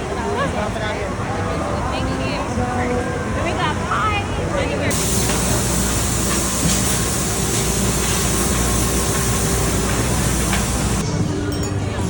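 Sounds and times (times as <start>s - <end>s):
aircraft engines and propellers droning: 4.9s - 11.0s.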